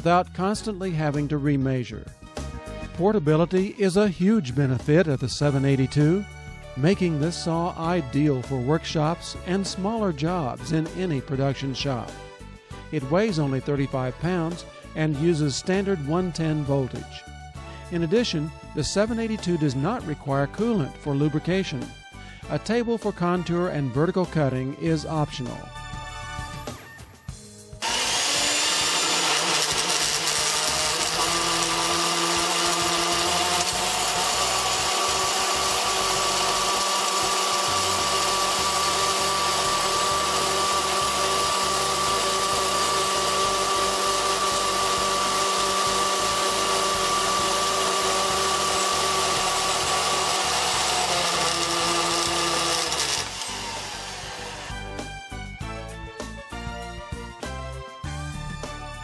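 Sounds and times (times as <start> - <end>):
bandsaw running: 27.8 - 55.6.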